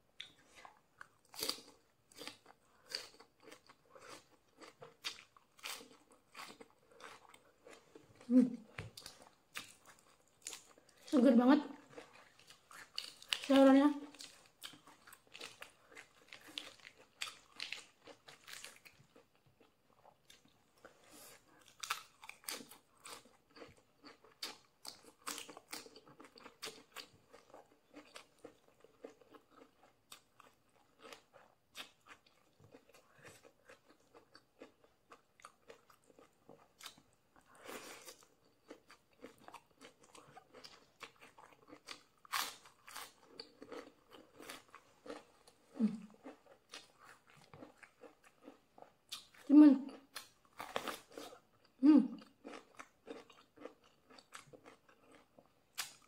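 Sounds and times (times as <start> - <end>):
chewing crisp vegetables: 0.0 - 56.0.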